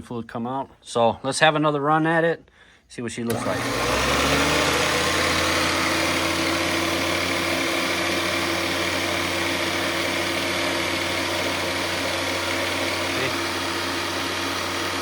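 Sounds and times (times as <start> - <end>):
grinding machine humming: 3.3 - 15.0.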